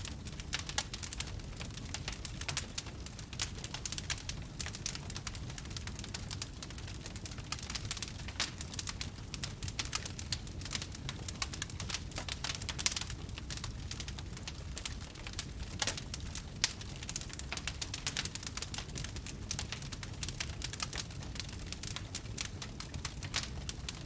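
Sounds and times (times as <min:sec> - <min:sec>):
campfire crackling and popping: 0:00.0 - 0:24.0
low rumble of burning: 0:00.0 - 0:24.0.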